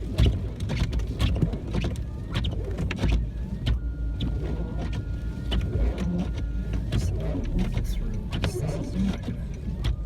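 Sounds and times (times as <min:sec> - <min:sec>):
idling car rumble: 0:04.6 - 0:10.0.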